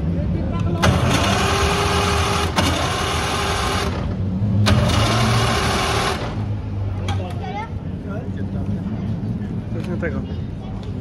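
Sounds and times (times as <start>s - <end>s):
car engine running: 0.0s - 7.1s.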